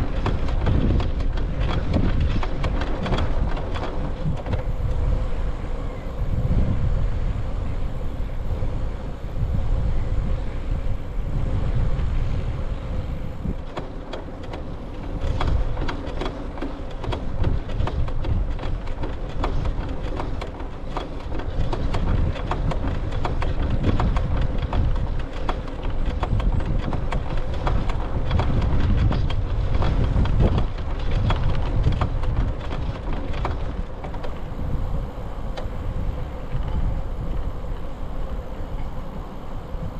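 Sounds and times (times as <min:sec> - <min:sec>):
small clicks and rattles: 0:00.0 - 0:05.0, 0:13.6 - 0:34.5
wind buffeting microphone: 0:00.0 - 0:39.9.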